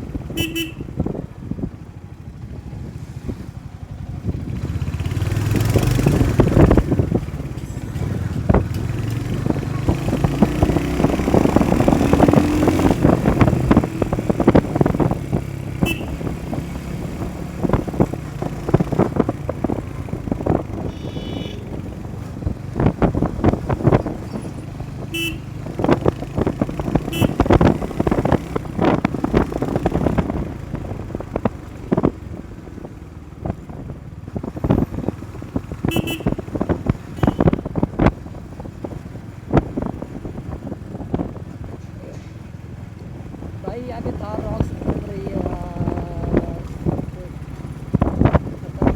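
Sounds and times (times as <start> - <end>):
motorcycle engine running: 0.0 - 48.9
vehicle horns tooting: 0.3 - 1.1, 15.8 - 16.4, 20.8 - 21.9, 25.0 - 25.5, 27.1 - 27.7, 35.8 - 37.7.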